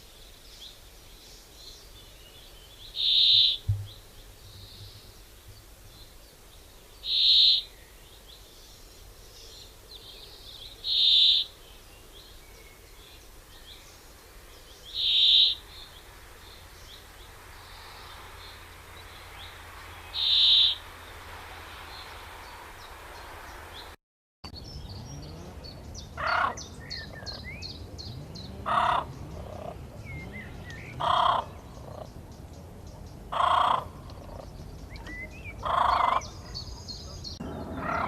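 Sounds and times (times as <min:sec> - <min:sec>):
small birds chirping: 0:00.0 - 0:38.0
loud bird call: 0:03.0 - 0:04.0, 0:10.8 - 0:11.6, 0:15.0 - 0:15.9, 0:19.3 - 0:20.9, 0:26.2 - 0:32.1, 0:35.0 - 0:38.0.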